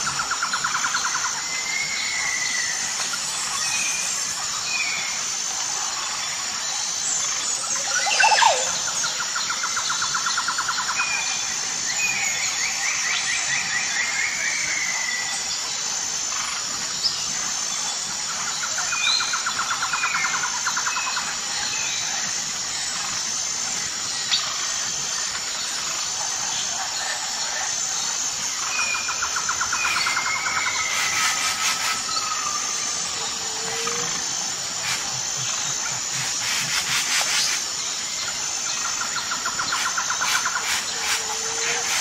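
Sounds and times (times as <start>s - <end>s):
bird chirps and trills: 7.2s - 11.0s, 28.1s - 42.0s.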